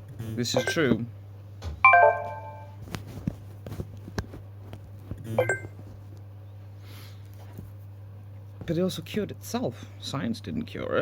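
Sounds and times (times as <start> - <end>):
steady low hum: 0.0 - 11.0
brief tone: 1.9 - 2.8.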